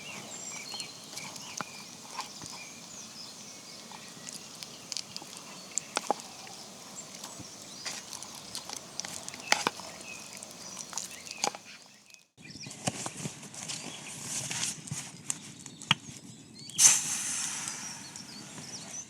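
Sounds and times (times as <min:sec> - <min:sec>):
outdoor hiss: 0:00.0 - 0:12.2, 0:16.8 - 0:19.0.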